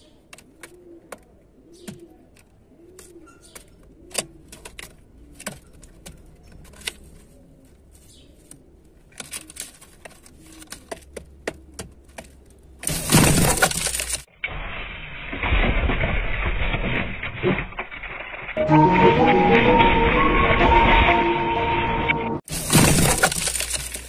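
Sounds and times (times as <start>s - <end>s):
pigeons cooing: 0.0s - 9.6s, 10.2s - 12.8s.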